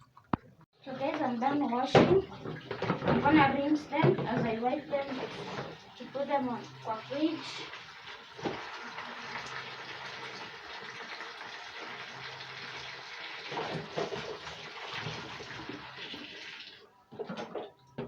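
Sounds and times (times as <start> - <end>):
splashing and handling: 0.0 - 8.9
water running from tap: 0.8 - 16.9.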